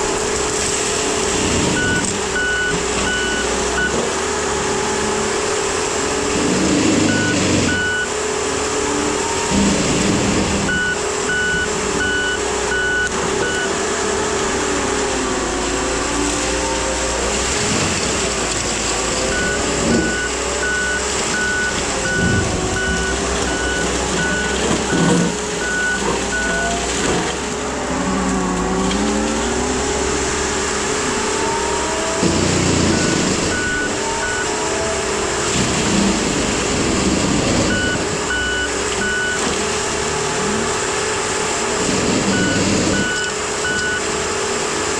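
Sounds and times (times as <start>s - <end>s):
engine noise: 0.0s - 44.9s
mulching head whining: 0.0s - 44.9s
backup alarm beeping: 1.7s - 4.0s, 7.0s - 8.2s, 10.7s - 13.8s, 19.3s - 26.8s, 32.2s - 34.6s, 37.7s - 39.5s, 42.2s - 44.0s.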